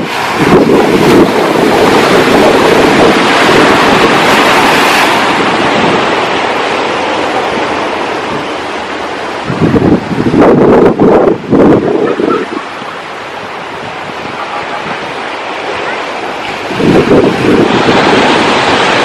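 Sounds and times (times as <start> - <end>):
sea surf washing on shore: 0.0 - 19.0
wind buffeting microphone: 0.0 - 19.0.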